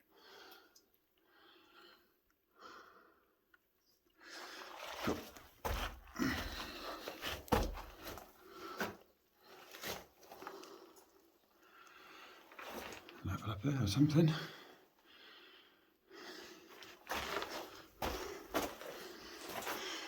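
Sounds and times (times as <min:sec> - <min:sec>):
footsteps scraping on rock: 0:05.0 - 0:09.0, 0:16.8 - 0:20.0
person breathing: 0:14.3 - 0:16.8.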